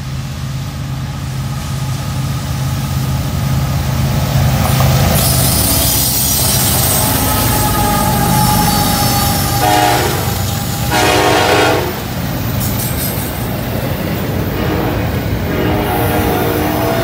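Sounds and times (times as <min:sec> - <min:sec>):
freight cars rumbling and clattering: 0:03.3 - 0:17.0
train horn blasts: 0:06.2 - 0:12.2, 0:14.5 - 0:17.0.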